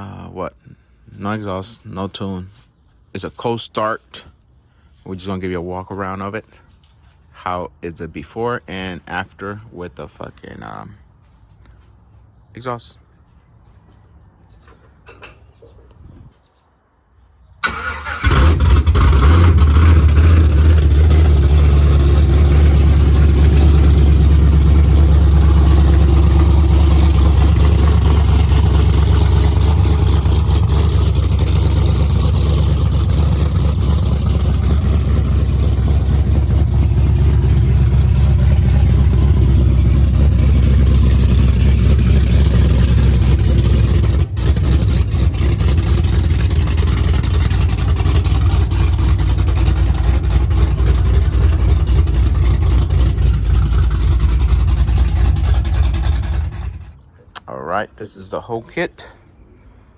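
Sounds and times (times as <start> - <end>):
engine cold-starting: 17.6 - 57.0
engine idling with deep rumble: 17.6 - 57.1.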